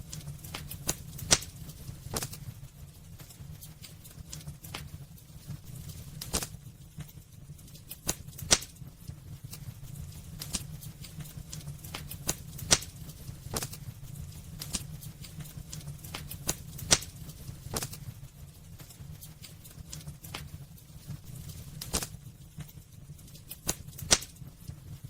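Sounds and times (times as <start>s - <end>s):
low steady rumble: 0.0s - 25.0s
wood fire crackling and popping: 0.0s - 25.0s.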